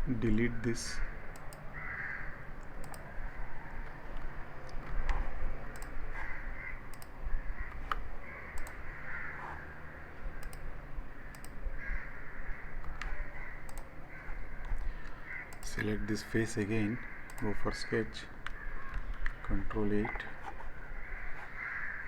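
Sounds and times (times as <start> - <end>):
crows cawing: 1.0 - 2.5, 6.1 - 10.4, 11.1 - 15.6, 16.7 - 22.0
computer mouse clicks: 1.3 - 1.6, 2.6 - 3.2, 3.8 - 9.6, 10.3 - 10.7, 11.3 - 11.6, 12.8 - 16.2, 17.2 - 17.6, 18.4 - 21.5.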